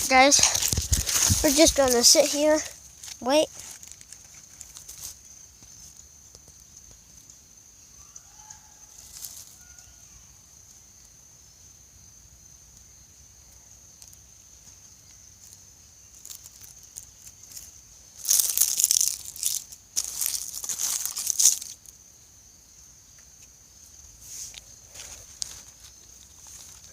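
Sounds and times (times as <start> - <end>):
loud crackling rustle: 0.0 - 5.3, 15.4 - 21.8.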